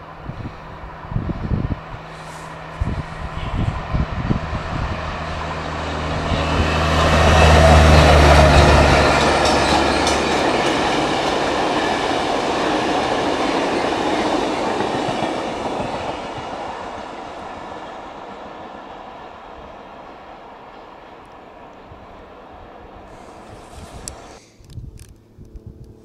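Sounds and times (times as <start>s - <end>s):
diesel machine droning: 0.0s - 13.4s
wheels clacking over rail joints: 5.2s - 19.6s.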